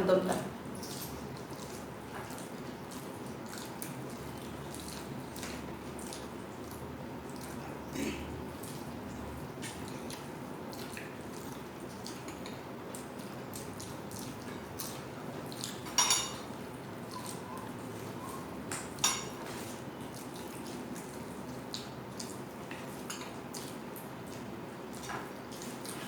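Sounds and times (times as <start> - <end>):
utensil clinking on plate: 15.9 - 16.4, 19.0 - 19.5.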